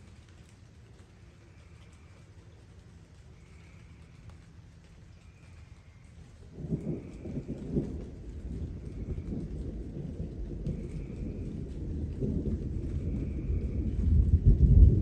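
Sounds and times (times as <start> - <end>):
light rain: 0.0 - 15.0
distant thunder rolling: 3.2 - 15.0.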